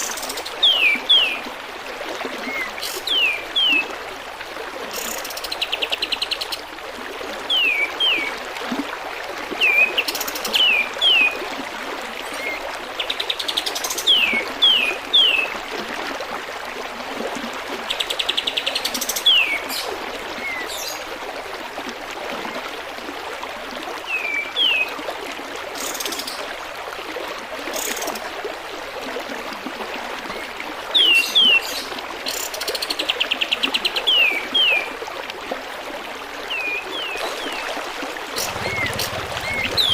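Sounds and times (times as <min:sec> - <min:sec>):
water trickling: 0:34.4 - 0:39.9
bird buzzy rattling trills: 0:38.4 - 0:39.9.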